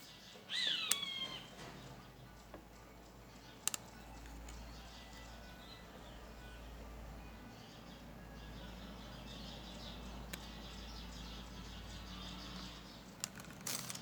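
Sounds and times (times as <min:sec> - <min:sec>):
small birds chirping: 0:00.0 - 0:14.0
sharp clicks: 0:03.6 - 0:04.6.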